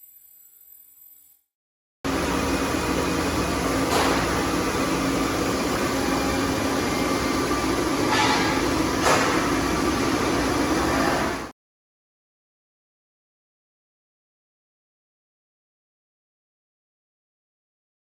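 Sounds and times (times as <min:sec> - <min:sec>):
bandsaw machine hum: 0:02.1 - 0:11.5.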